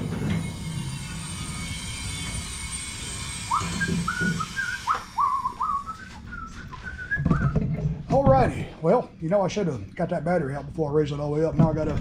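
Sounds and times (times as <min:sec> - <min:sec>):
mechanical hum: 0:00.0 - 0:12.0
man whistling: 0:03.5 - 0:07.6.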